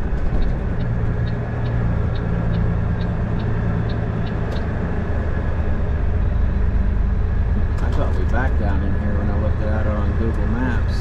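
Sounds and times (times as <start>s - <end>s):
turn signal ticking: 0.0s - 4.8s
truck engine running: 0.0s - 11.0s.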